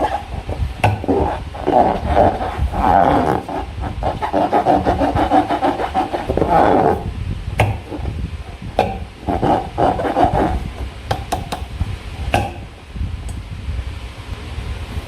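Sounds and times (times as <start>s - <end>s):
slime squishing against balloons: 0.0s - 11.3s.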